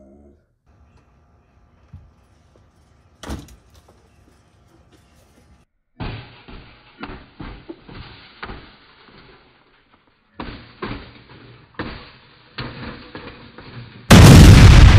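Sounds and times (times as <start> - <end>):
sharp thumps and bangs: 6.0 - 8.7.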